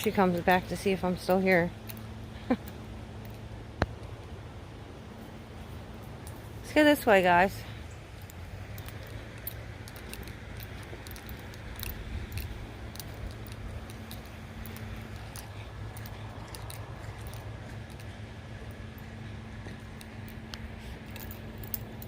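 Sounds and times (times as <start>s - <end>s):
low steady rumble: 0.0s - 22.0s
small jingles: 0.0s - 22.0s
footsteps clicking on trail: 5.6s - 22.0s.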